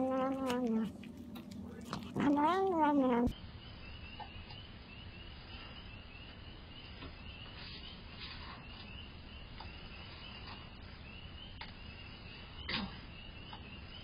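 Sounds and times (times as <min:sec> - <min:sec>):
crickets chirping: 0:03.3 - 0:14.0.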